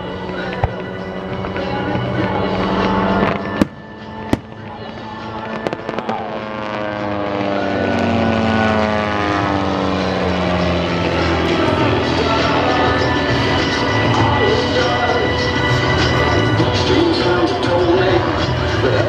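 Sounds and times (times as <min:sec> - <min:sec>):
propeller plane passing by: 0:00.0 - 0:19.0
firework bangs: 0:03.1 - 0:06.8.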